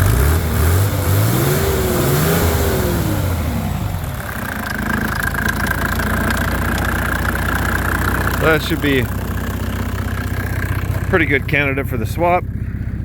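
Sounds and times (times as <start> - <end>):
diesel engine revving and idling: 0.0 - 13.0.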